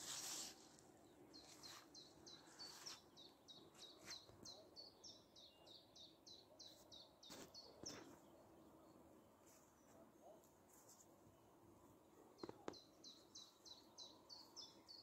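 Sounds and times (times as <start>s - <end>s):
small bird chirping: 0.2s - 8.5s, 12.4s - 15.0s.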